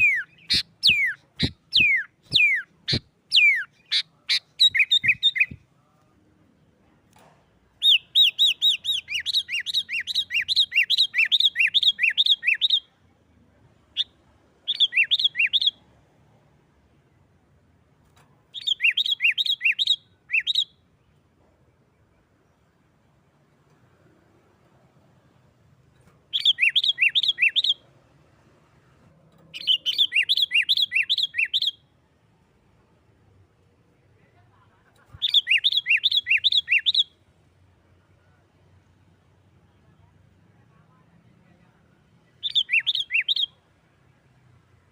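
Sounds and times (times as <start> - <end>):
bird singing whistled notes: 0.0 - 5.6, 7.8 - 12.9, 14.0 - 15.8, 18.6 - 20.8, 26.3 - 27.8, 29.6 - 31.8, 35.2 - 37.1, 42.4 - 43.6.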